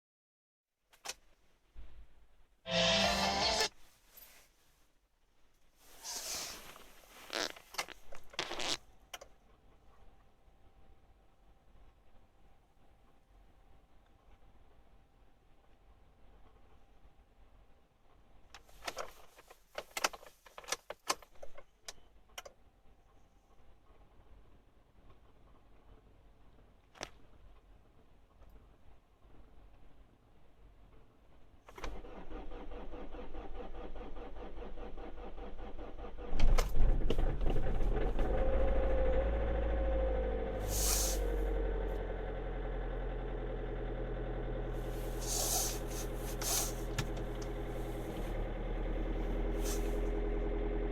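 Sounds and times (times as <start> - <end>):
short hiss: 5.9 - 7.6, 40.6 - 41.4, 44.8 - 47.1, 49.5 - 50.1
engine cranking: 31.8 - 41.8, 44.7 - 50.3.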